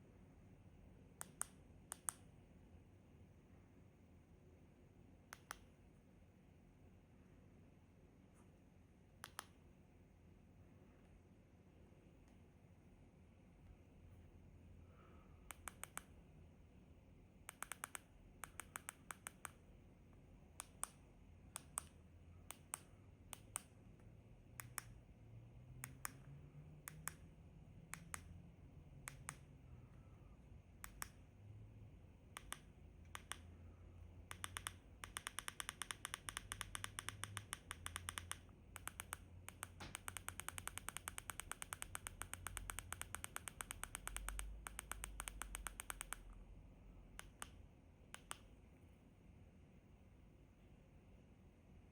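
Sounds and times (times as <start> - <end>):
remote control buttons clicking: 9.2 - 9.6, 15.5 - 16.1, 32.4 - 33.5, 34.3 - 46.4, 47.2 - 47.6, 48.2 - 48.5.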